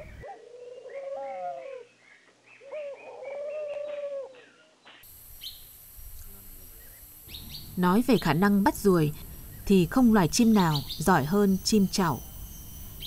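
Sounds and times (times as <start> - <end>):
high bird chirp: 6.7 - 13.0.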